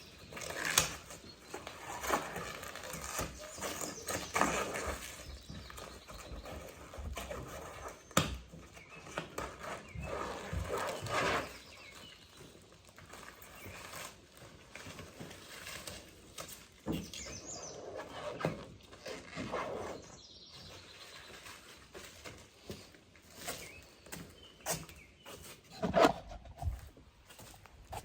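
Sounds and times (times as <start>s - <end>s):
rubber coating being peeled: 0.3s - 5.2s.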